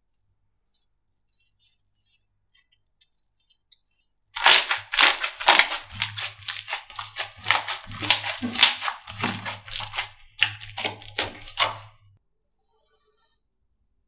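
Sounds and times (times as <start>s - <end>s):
slime squishing and crackling: 4.4s - 11.9s.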